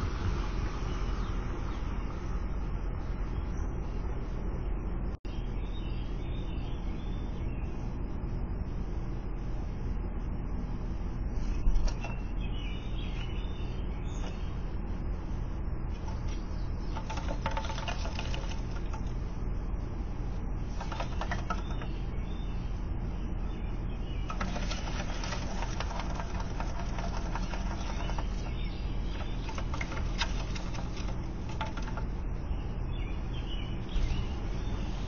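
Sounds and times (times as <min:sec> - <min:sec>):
steady low hum: 0:00.0 - 0:35.0
bird scratching and clicking: 0:11.6 - 0:12.3, 0:15.9 - 0:19.4, 0:20.6 - 0:22.2, 0:24.2 - 0:32.5
dry twigs rustling: 0:15.9 - 0:22.0, 0:24.2 - 0:35.0
wings flapping: 0:16.0 - 0:19.2, 0:20.7 - 0:21.9, 0:24.3 - 0:32.2.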